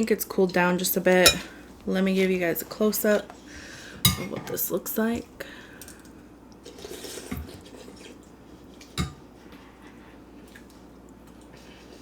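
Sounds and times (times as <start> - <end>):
tableware clink: 1.2 - 1.5.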